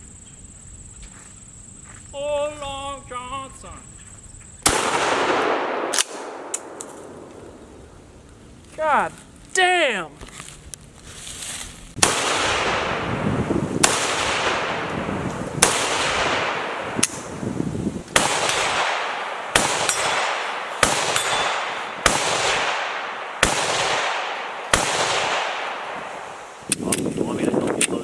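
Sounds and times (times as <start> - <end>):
gunshots with echo: 4.6 - 7.3, 12.0 - 13.2, 13.8 - 17.4, 18.1 - 26.4.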